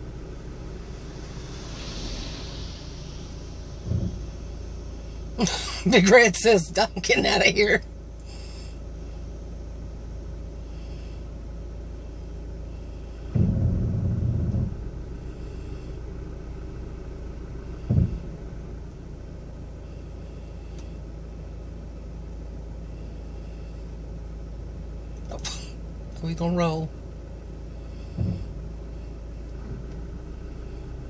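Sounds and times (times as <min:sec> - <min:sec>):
car engine low rumble: 0:00.0 - 0:31.0
low engine burst: 0:00.0 - 0:31.0
short knock: 0:13.4 - 0:14.8, 0:17.9 - 0:18.3.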